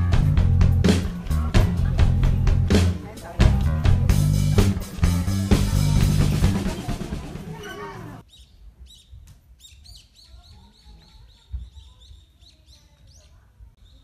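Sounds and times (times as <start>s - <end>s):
background music: 0.0s - 8.2s
birds chirping: 4.7s - 14.0s.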